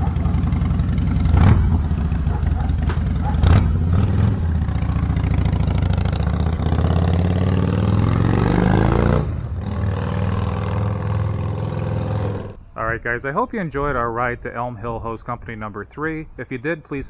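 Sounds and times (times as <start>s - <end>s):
motorcycle engine accelerating: 0.8s - 12.6s.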